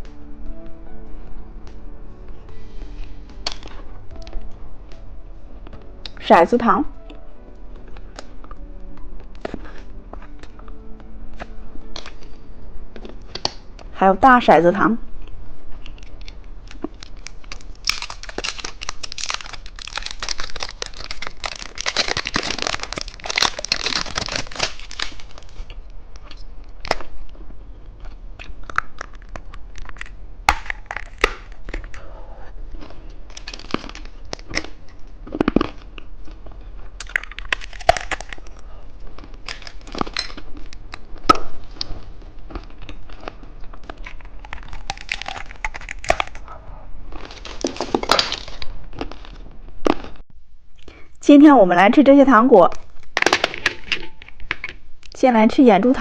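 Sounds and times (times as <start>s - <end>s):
sharp clicks and crunches: 3.4s - 5.0s, 12.9s - 13.9s, 15.2s - 32.0s, 32.8s - 46.4s, 47.2s - 50.2s, 52.8s - 55.2s
plastic wrapper crinkling: 15.7s - 27.2s, 28.7s - 32.0s, 32.8s - 46.5s, 47.2s - 50.2s.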